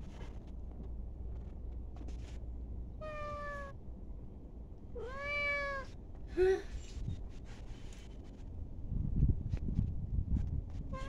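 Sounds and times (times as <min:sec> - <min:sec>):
kitten meowing: 0:05.0 - 0:05.9.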